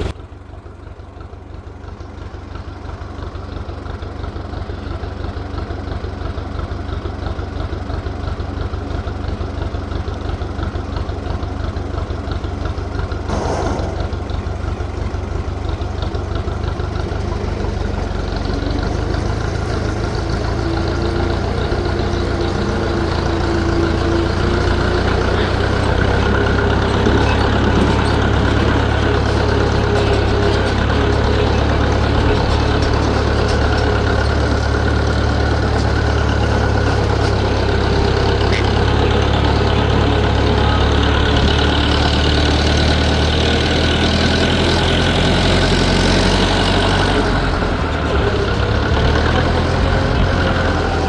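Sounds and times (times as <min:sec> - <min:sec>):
engine running with low pulse: 0:00.0 - 0:51.0.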